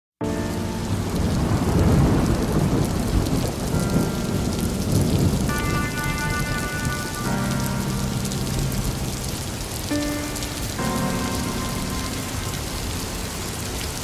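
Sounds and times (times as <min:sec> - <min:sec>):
heavy rain: 0:00.2 - 0:14.0
thunder rumbling: 0:00.4 - 0:14.0
faint held musical notes: 0:03.7 - 0:14.0.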